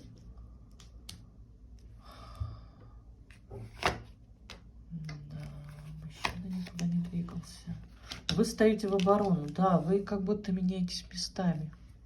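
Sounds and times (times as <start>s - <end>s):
cards rustling: 5.4s - 9.7s.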